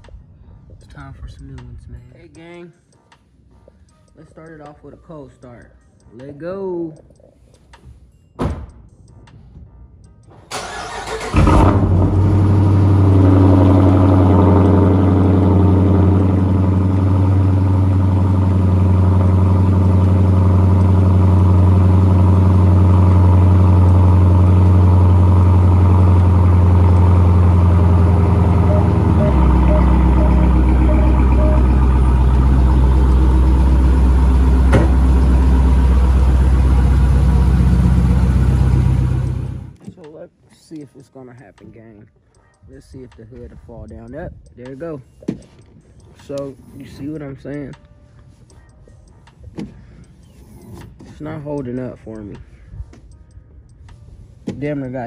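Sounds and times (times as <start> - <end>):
starter motor cranking: 10.5 - 12.0
car engine idling: 10.5 - 39.8.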